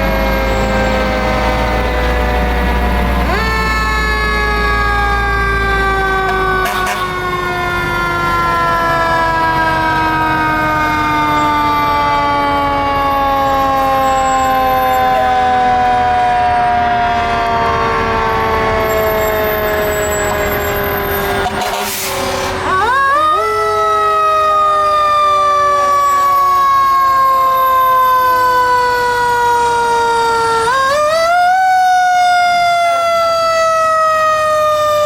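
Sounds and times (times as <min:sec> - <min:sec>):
fire truck siren wailing: 0:00.0 - 0:35.0.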